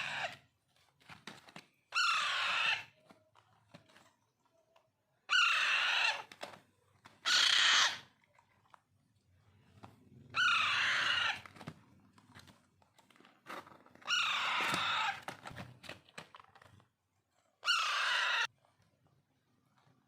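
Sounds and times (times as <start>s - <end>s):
parakeet chicks screeching: 0.0s - 0.4s, 1.9s - 3.0s, 5.3s - 6.3s, 7.2s - 8.1s, 10.3s - 11.5s, 14.0s - 15.3s, 17.6s - 18.5s.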